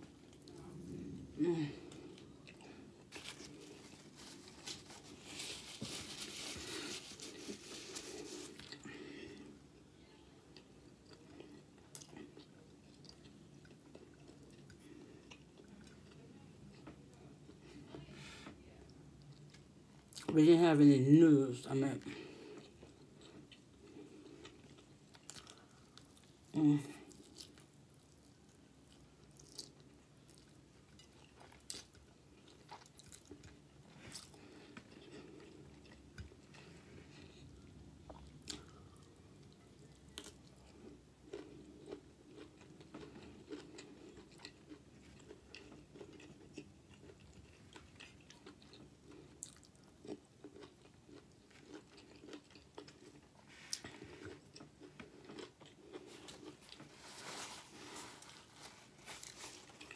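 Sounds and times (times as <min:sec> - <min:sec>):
person chewing food: 0:00.0 - 0:09.9, 0:10.5 - 0:18.1, 0:22.1 - 0:59.9.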